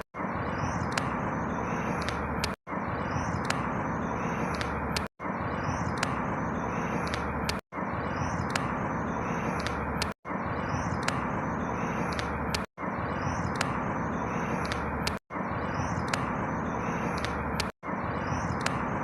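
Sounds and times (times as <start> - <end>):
clicks: 0.8 - 1.2, 1.9 - 2.6, 3.3 - 3.7, 4.4 - 5.1, 6.9 - 7.6, 8.4 - 8.7, 9.5 - 10.2, 10.9 - 11.3, 12.0 - 12.7, 14.5 - 15.2, 16.0 - 16.3, 17.0 - 17.7, 18.5 - 18.8.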